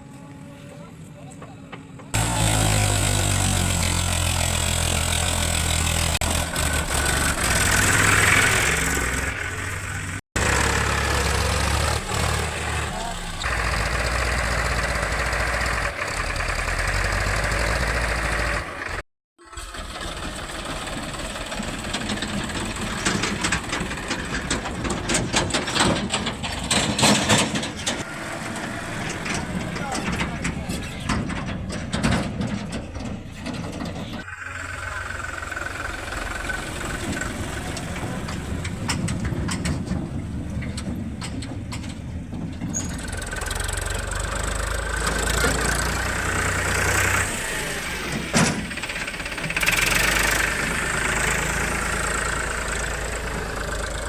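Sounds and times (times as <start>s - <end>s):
diesel engines running: 0.0s - 54.0s
clattering and knocks: 21.6s - 28.1s, 29.0s - 34.3s, 37.0s - 43.6s.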